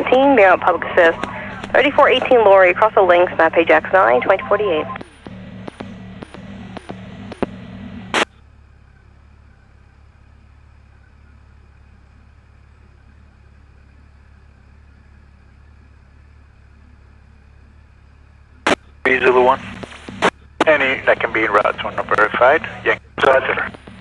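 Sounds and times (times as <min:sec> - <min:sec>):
scanner squelch burst: 0:00.0 - 0:08.3, 0:18.6 - 0:24.0
motorcycle engine low rumble: 0:00.0 - 0:24.0.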